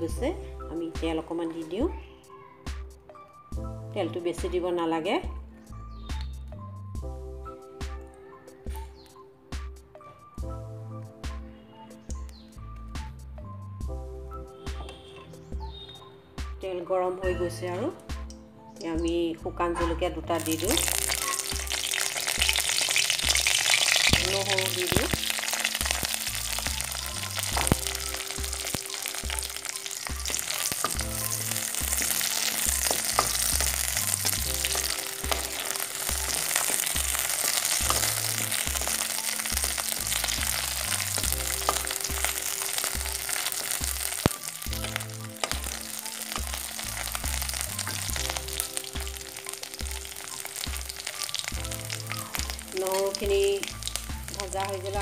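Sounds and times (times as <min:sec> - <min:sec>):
background music with low beat: 0:00.0 - 0:55.0
garlic and chillies sizzling in oil: 0:18.8 - 0:55.0.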